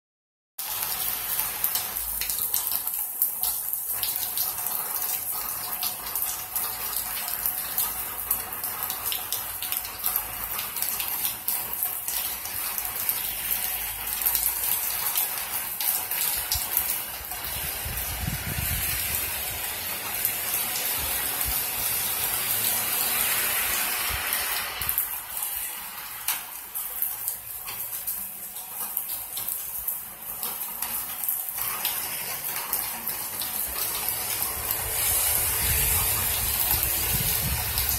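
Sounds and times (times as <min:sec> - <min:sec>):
heavy rain falling: 0:00.6 - 0:37.9
car passing on wet road: 0:12.9 - 0:27.1, 0:32.0 - 0:37.9.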